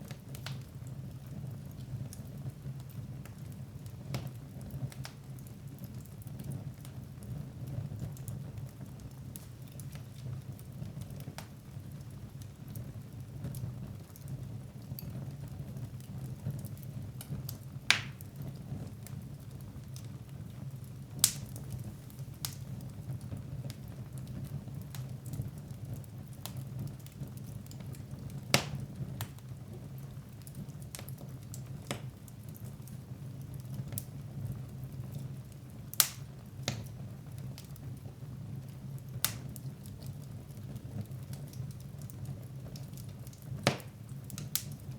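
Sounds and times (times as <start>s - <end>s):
fire flames rumbling: 0.0s - 44.9s
wood fire crackling: 0.0s - 44.9s
sharp fire pops: 17.2s - 18.3s, 21.2s - 22.8s, 28.4s - 29.5s, 31.8s - 32.6s, 35.9s - 37.0s, 39.2s - 39.7s, 43.6s - 44.8s.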